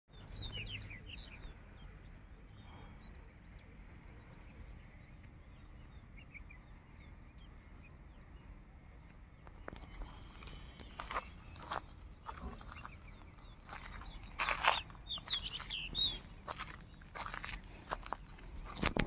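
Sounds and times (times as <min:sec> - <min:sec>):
small birds chirping: 0:00.1 - 0:19.0.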